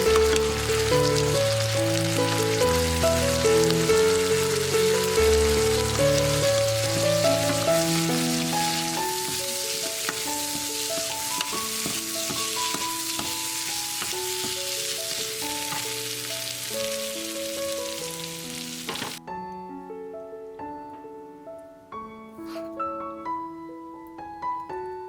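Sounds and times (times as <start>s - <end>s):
stirring clicks: 0.0s - 1.2s, 6.0s - 16.0s
stems sizzling in a pan: 0.0s - 19.2s.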